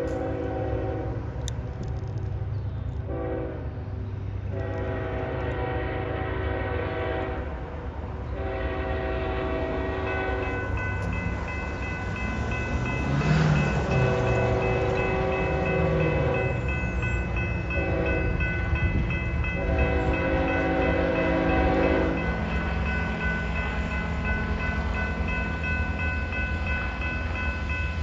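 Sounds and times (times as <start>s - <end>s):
locomotive air horn blasts: 0.0s - 1.2s, 3.1s - 3.7s, 4.5s - 7.6s, 8.3s - 10.5s, 13.6s - 16.7s, 17.7s - 22.4s
train rumbling past: 0.0s - 28.0s.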